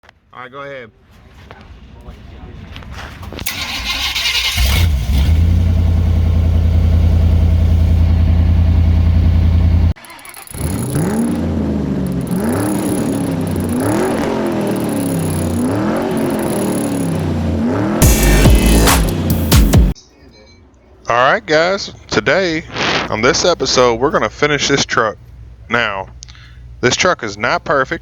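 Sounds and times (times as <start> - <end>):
pickup engine fast idle: 3.4 - 11.2
pickup engine revving: 3.4 - 20.0.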